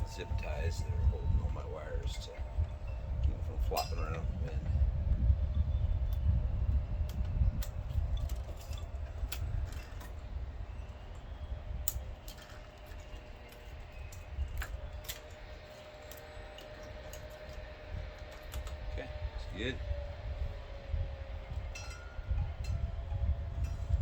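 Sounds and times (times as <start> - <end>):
low rumble: 0.0 - 12.3.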